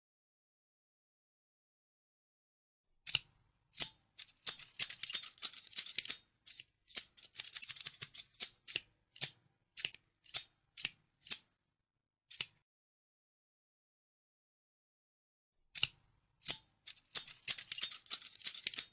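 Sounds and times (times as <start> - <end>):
scissors snipping: 3.0 - 11.5, 12.3 - 12.6, 15.7 - 18.9.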